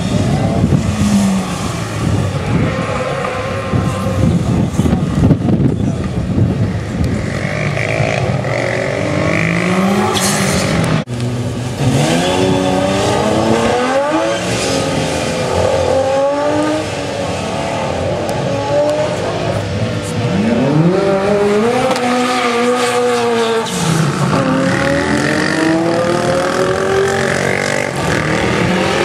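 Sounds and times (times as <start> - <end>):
race car accelerating: 0.0 - 29.0
sports car engine revving: 7.0 - 29.0.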